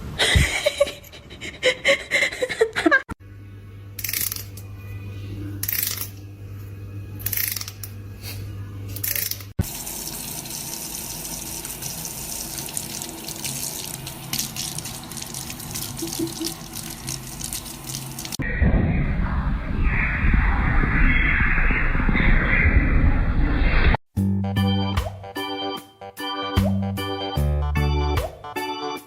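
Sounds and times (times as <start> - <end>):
running water from tap: 9.6 - 18.4.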